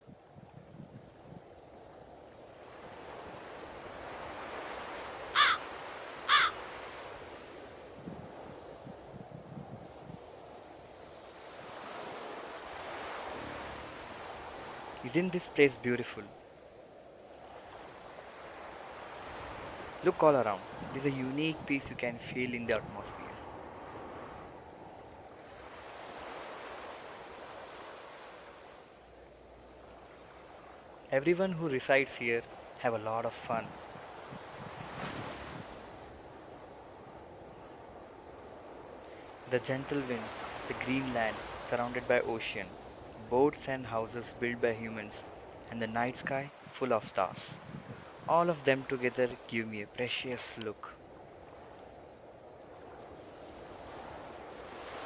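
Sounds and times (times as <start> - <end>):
insects chirping: 0.0 - 55.0
wind: 0.0 - 55.0
bird harsh calls: 5.3 - 6.8
surf: 39.1 - 51.0.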